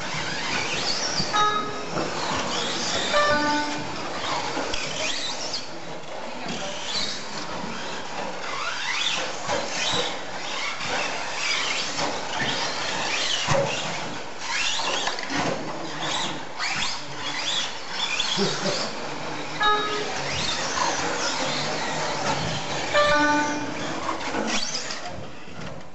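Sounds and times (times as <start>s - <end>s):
radio-controlled truck motors whining: 0.0s - 1.4s, 6.5s - 25.4s.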